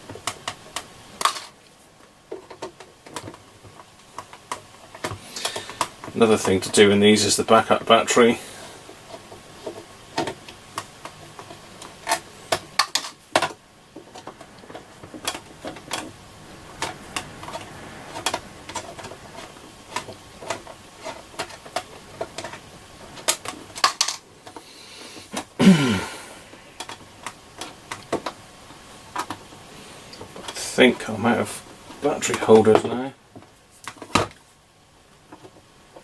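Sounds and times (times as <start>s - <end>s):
clicks and clatters of small parts: 0.1s - 6.6s, 23.2s - 25.5s
scrape dropping in pitch: 13.2s - 23.2s.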